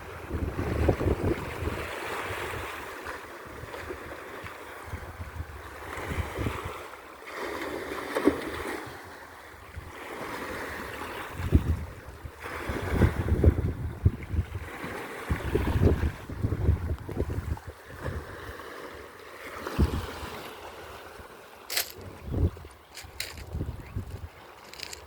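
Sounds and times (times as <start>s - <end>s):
wind buffeting microphone: 0.0s - 2.7s, 11.3s - 18.4s, 19.8s - 20.2s, 21.7s - 25.0s.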